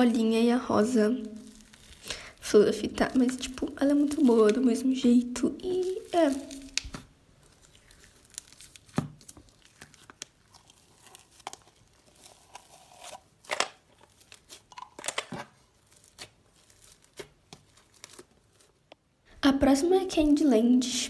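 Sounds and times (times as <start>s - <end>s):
slime squeezed by hand: 1.2s - 4.6s, 5.5s - 18.7s
slime popping: 1.2s - 12.7s
sticky clicks and crackles: 1.4s - 4.8s, 5.5s - 18.7s.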